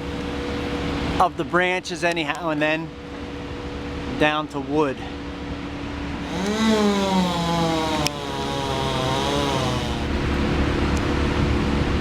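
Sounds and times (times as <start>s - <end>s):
chainsaw revving: 6.2s - 10.3s.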